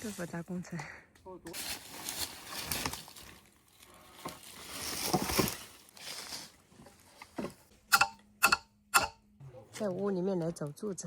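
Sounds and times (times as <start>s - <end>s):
rustling of building materials: 1.5s - 7.8s.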